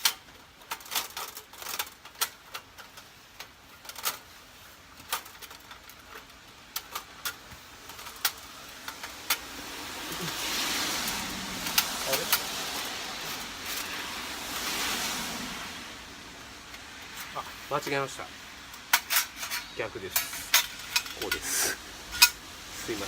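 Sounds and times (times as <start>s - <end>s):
metal panels clicking and tapping: 0.0s - 9.5s, 18.7s - 21.4s, 22.1s - 22.4s
hiss: 8.5s - 17.7s, 19.5s - 23.0s.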